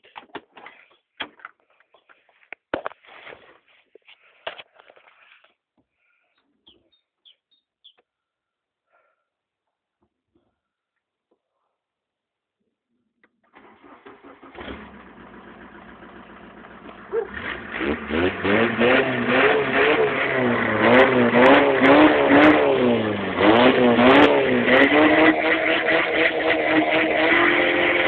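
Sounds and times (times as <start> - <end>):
car engine starter cranking: 13.4 - 17.8
car engine idling and revving: 13.6 - 28.0.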